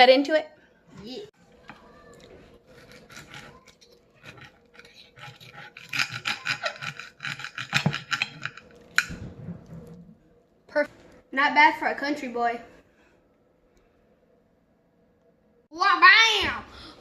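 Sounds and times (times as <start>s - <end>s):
knife sawing through steak: 2.7s - 8.3s.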